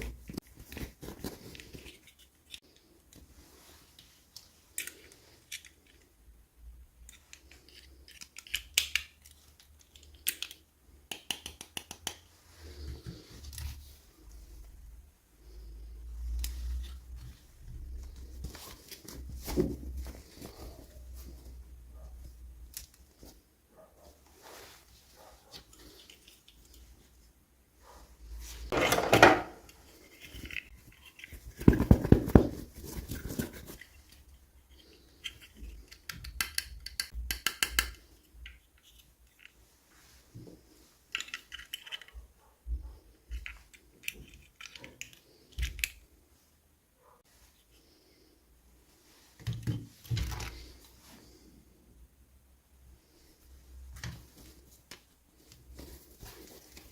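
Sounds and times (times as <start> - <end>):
plastic toy pieces clicking: 7.0 - 12.2, 35.2 - 39.5.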